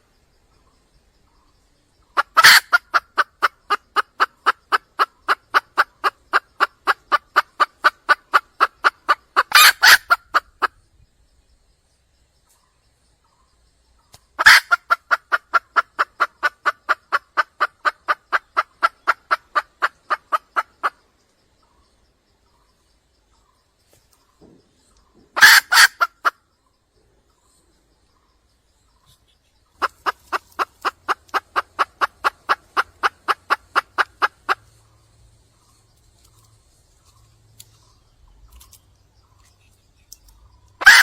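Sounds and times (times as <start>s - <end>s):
hen calling in quick repeated notes: 2.2s - 10.8s, 14.4s - 21.0s, 25.4s - 26.3s, 40.8s - 41.0s.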